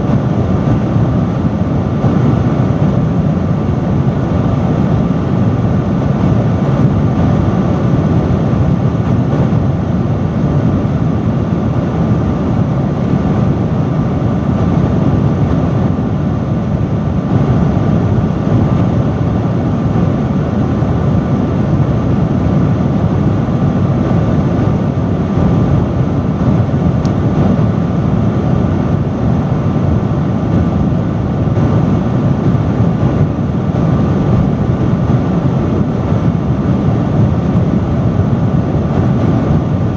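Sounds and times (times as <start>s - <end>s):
faint steady hum: 0.0s - 39.9s
industrial fan rushing air: 0.0s - 39.9s.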